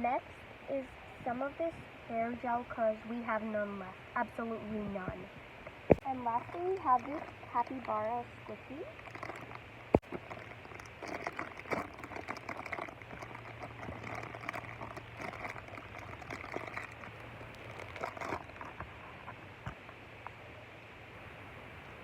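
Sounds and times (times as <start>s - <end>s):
handling crackles and rustles: 5.1s - 20.0s.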